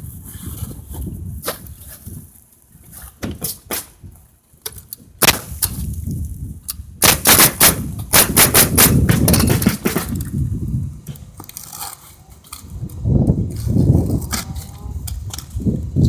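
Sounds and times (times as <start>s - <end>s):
hammer striking nails: 7.0s - 10.2s.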